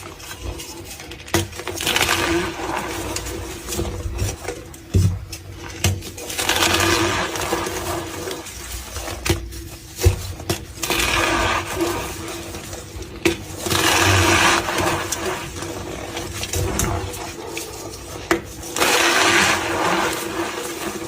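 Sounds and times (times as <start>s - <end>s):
chalk crunching squeakily: 6.4s - 21.0s.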